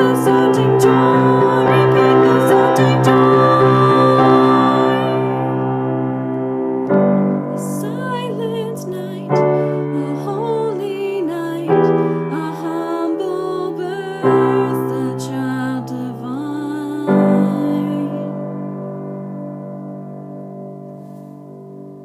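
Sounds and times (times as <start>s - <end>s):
person singing: 0.0s - 5.9s, 7.0s - 18.5s
slow piano chords: 0.0s - 22.0s.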